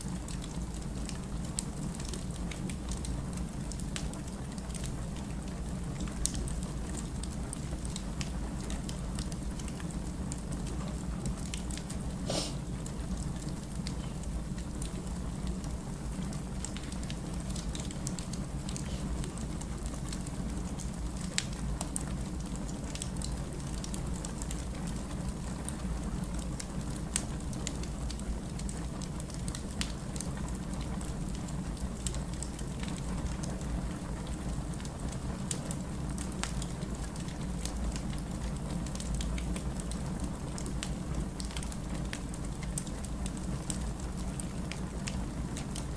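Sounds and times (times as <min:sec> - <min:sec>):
fire crackling and popping: 0:00.0 - 0:45.9
low rumble of fire: 0:00.0 - 0:45.9.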